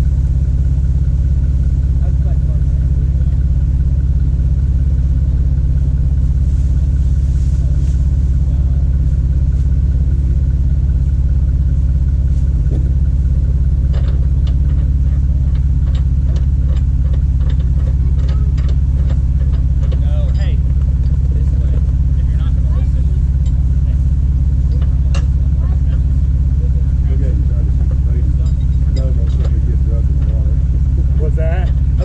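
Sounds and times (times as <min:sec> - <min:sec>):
vehicle engine humming: 0:00.0 - 0:32.0
short clicks and knocks: 0:13.8 - 0:21.2.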